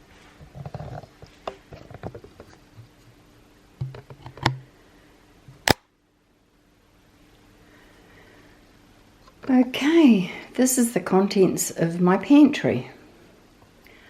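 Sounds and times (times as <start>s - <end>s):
knocks and clicks of handling: 0.5s - 3.0s, 3.8s - 4.6s.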